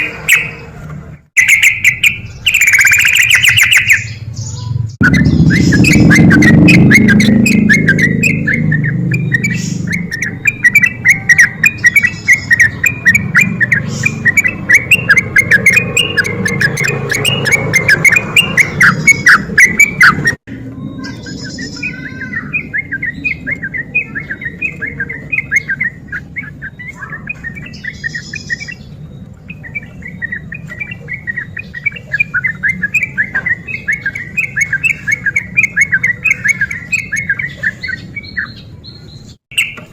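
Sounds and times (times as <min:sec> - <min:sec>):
bird singing chattering phrases: 0:00.0 - 0:00.8, 0:01.4 - 0:39.9.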